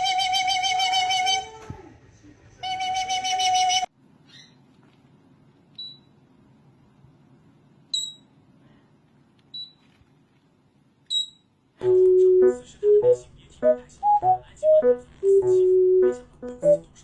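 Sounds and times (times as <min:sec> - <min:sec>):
parrot high-pitched peeps: 0:00.0 - 0:01.6, 0:02.6 - 0:04.7.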